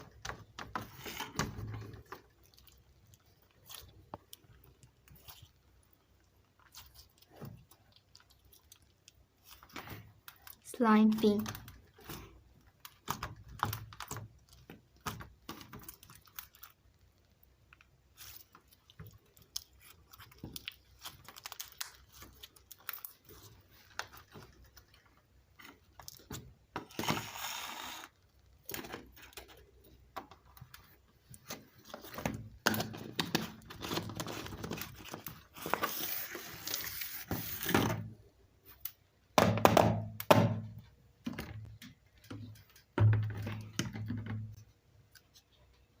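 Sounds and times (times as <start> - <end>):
hands squishing slime: 0.0 - 27.4.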